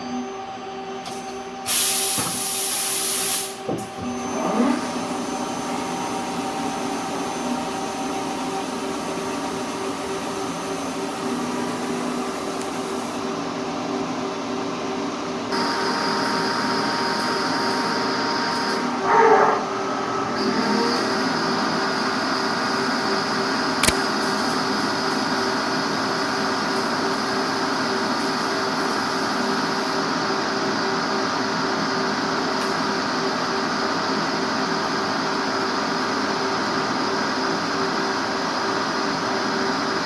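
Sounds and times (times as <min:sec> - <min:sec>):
loud burst of hiss: 0:01.7 - 0:03.6.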